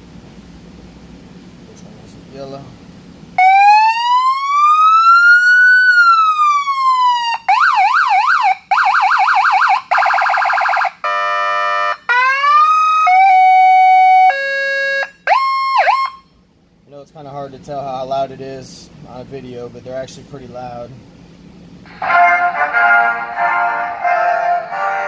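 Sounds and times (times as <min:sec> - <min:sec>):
electronic siren cycling tones: 0:03.4 - 0:16.3.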